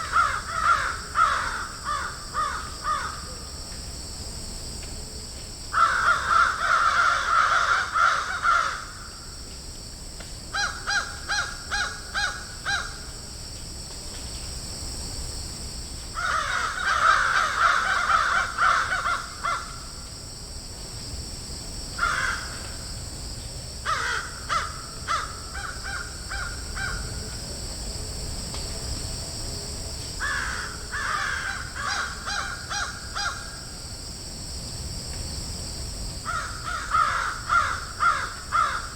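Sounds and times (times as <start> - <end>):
crows cawing: 0.0 - 3.3, 5.8 - 9.1, 10.6 - 13.0, 16.2 - 19.9, 22.0 - 22.6, 23.9 - 27.0, 30.2 - 33.6, 36.2 - 38.9
steady high hiss: 0.0 - 38.9.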